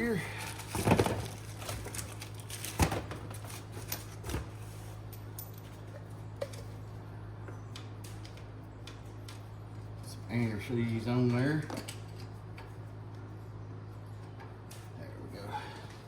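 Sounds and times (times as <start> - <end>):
nuts and washers clinking: 0.0 - 6.8, 7.7 - 12.8
steady low hum: 0.0 - 16.0.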